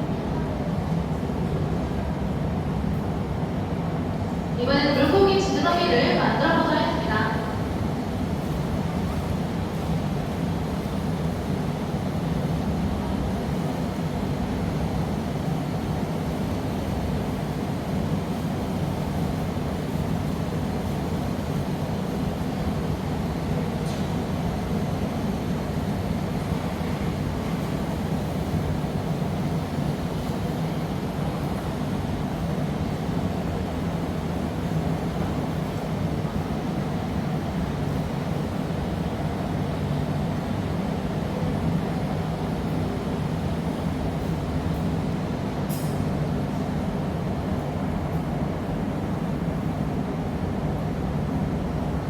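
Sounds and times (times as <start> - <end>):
furnace burners roaring: 0.0 - 52.0.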